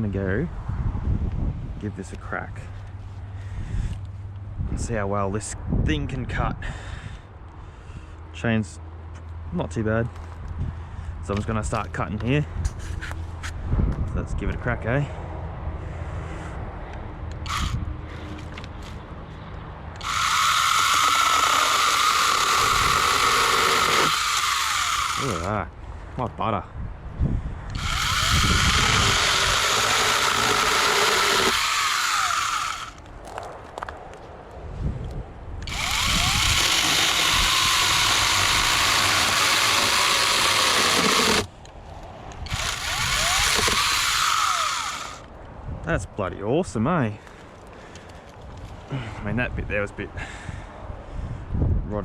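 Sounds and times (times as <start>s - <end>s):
chainsaw whining cutting wood: 17.5s - 17.8s, 20.0s - 25.6s, 27.7s - 33.0s, 35.6s - 41.5s, 42.5s - 45.2s.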